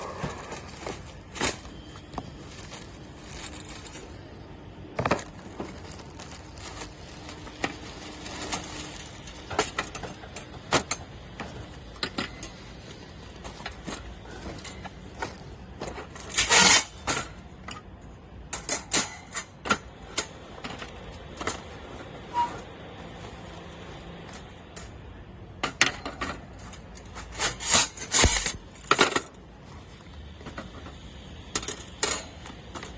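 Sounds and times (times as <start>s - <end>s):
metal grill parts clinking: 18.5s - 21.6s, 31.6s - 32.9s.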